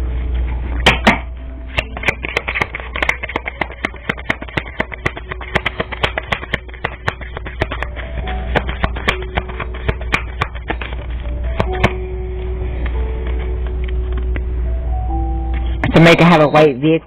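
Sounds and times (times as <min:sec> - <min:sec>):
faint background music: 0:00.0 - 0:17.0
cards being shuffled: 0:01.0 - 0:12.0.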